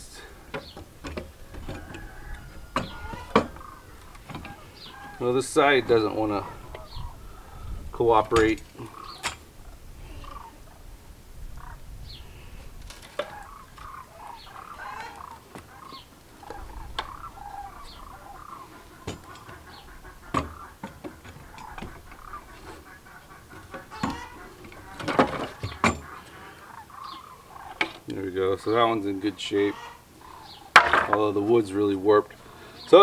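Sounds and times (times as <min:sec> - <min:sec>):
birds chirping: 0:00.0 - 0:33.0
chickens clucking: 0:00.0 - 0:33.0
wood board cracking: 0:30.7 - 0:31.5.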